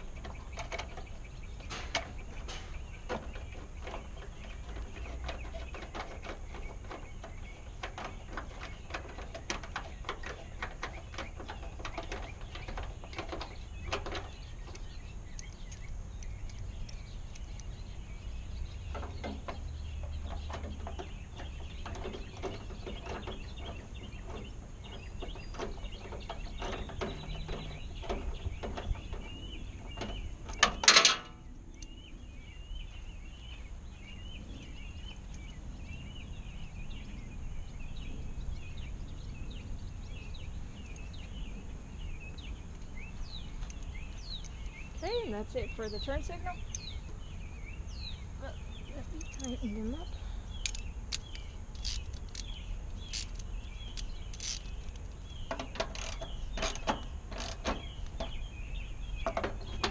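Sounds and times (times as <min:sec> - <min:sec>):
light clicks of bolting parts: 0:00.0 - 0:32.0, 0:42.4 - 0:45.3, 0:48.8 - 0:59.9
birds chirping: 0:00.0 - 0:59.9.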